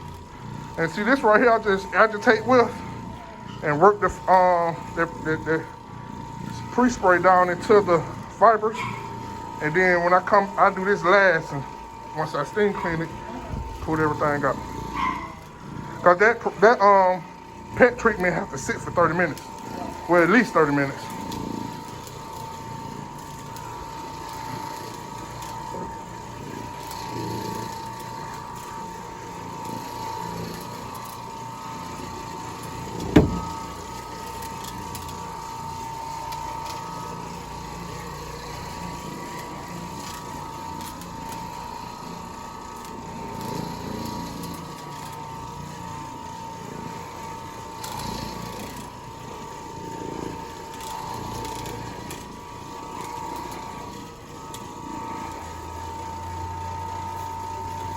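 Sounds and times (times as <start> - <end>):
motor whining: 0.0 - 57.9
sharp knock: 33.0 - 33.6.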